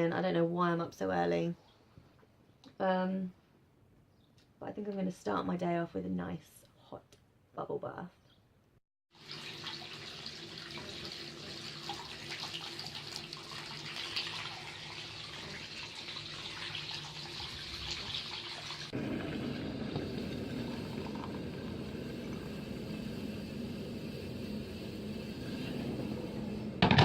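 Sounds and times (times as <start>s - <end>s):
bath tap running into tub: 9.1s - 27.0s.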